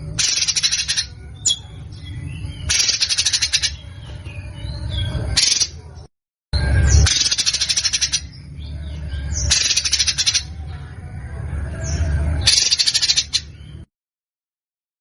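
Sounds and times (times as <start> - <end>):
soft bird chirps: 0.0 - 13.9
songbird harsh rattling: 0.2 - 1.6, 2.7 - 4.2.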